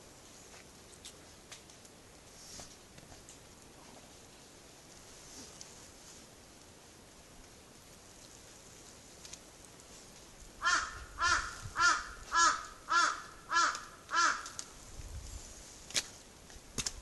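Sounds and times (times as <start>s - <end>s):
bird calling: 10.6s - 14.7s.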